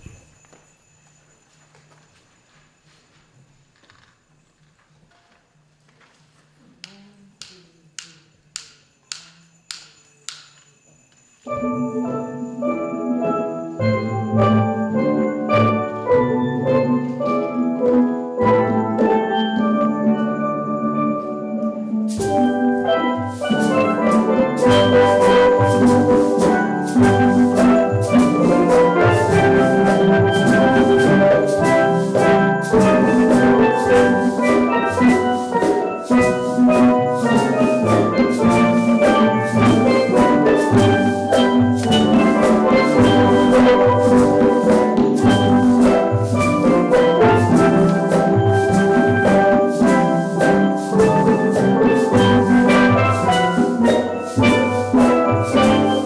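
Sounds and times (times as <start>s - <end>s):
steel drum band playing: 11.6s - 56.0s.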